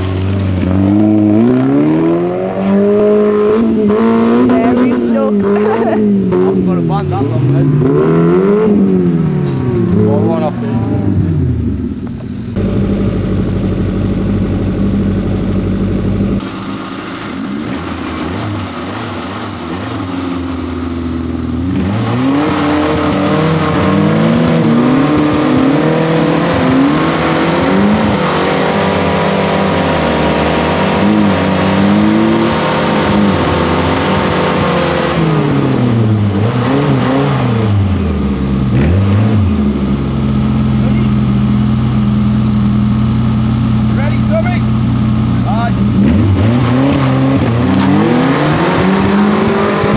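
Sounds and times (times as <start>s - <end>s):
engine revving: 0.0s - 49.9s.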